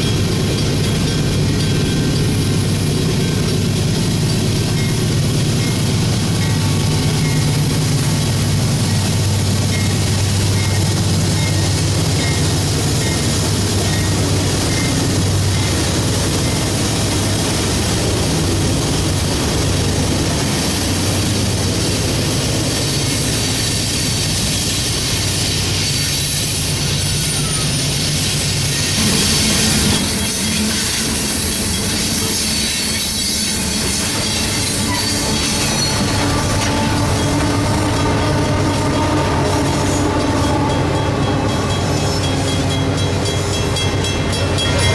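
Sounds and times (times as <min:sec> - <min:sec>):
train wheels rushing on rail: 0:00.0 - 0:44.9.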